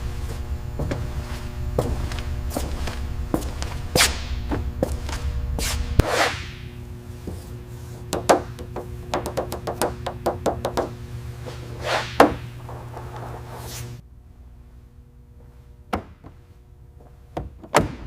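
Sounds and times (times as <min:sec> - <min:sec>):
steady low hum: 0:00.0 - 0:18.0
swish: 0:05.6 - 0:06.6, 0:11.7 - 0:12.4.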